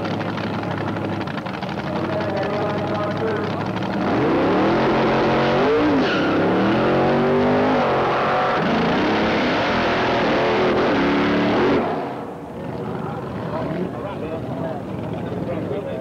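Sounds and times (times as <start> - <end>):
car engine revving hard: 3.9 - 12.3.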